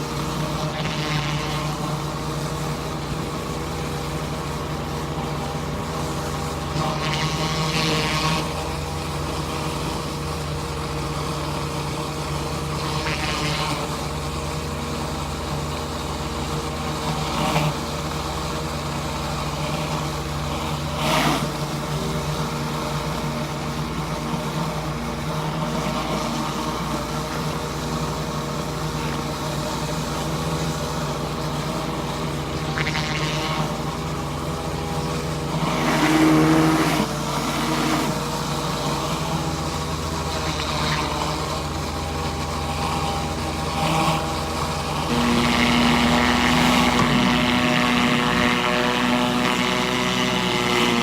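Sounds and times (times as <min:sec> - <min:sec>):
pressure washer running: 0:00.0 - 0:51.0.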